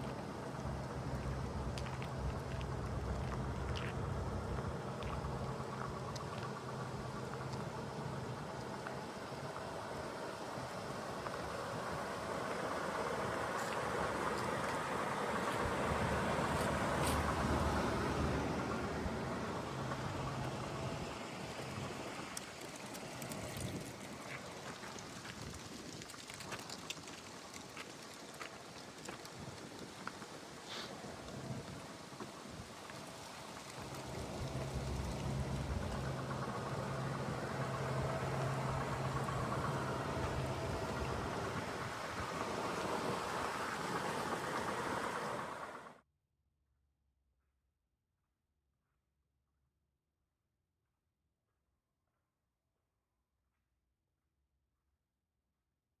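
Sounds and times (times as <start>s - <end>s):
steady hiss: 0.0s - 45.9s
car engine and road rumble: 0.0s - 46.0s.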